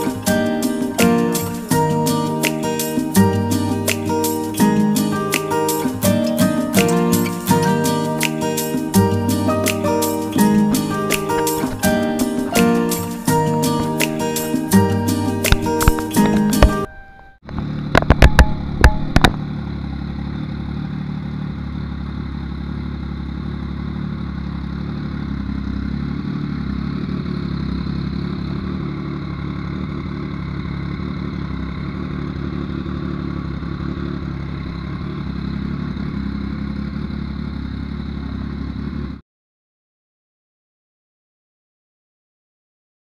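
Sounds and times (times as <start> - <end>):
motorcycle engine idling: 0.0 - 39.2
sharp clicks: 15.4 - 16.9.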